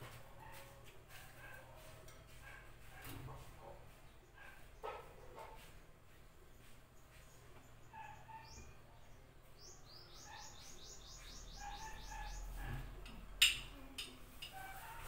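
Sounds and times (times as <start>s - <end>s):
small bird chirping: 6.6s - 12.8s.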